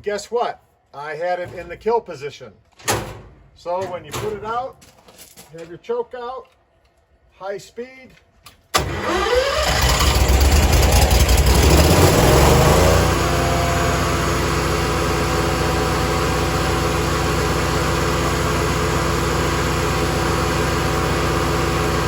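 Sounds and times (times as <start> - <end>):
wood chipper engine running: 8.8 - 22.0.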